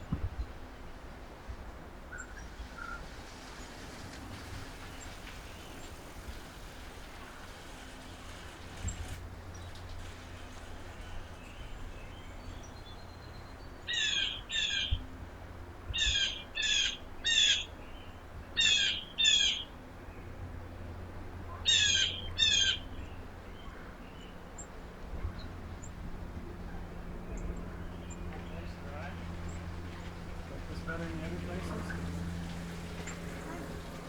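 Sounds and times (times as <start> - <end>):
bird giving harsh calls: 13.9 - 15.0, 16.0 - 17.7, 18.6 - 19.7.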